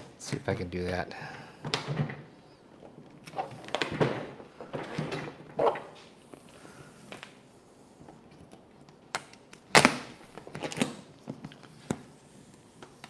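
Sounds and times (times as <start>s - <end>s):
vinyl sheet crinkling: 7.1s - 13.0s.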